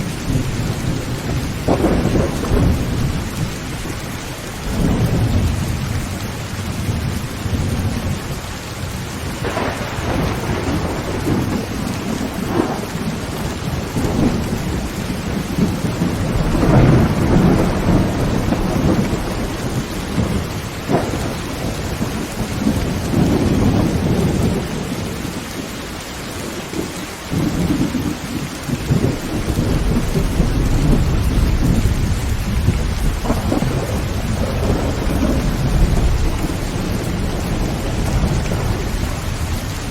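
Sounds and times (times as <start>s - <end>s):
thunder cracks: 0.0s - 4.0s, 9.3s - 25.3s, 26.8s - 39.9s
heavy rain on a tin roof: 0.0s - 39.9s
thunder rumbling: 0.0s - 39.9s.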